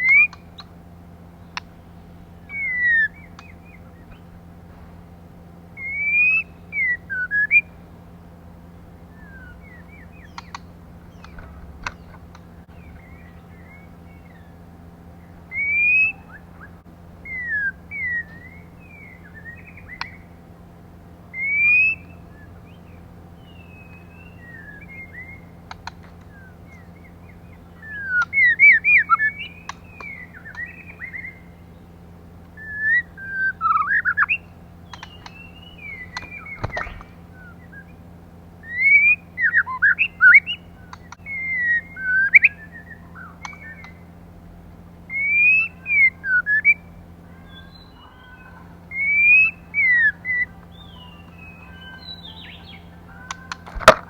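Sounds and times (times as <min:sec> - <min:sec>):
steady low hum: 0:00.0 - 0:54.0
bird whistled notes: 0:02.4 - 0:04.3, 0:05.8 - 0:07.7, 0:09.1 - 0:12.1, 0:15.5 - 0:20.3, 0:21.4 - 0:31.6, 0:45.1 - 0:53.9.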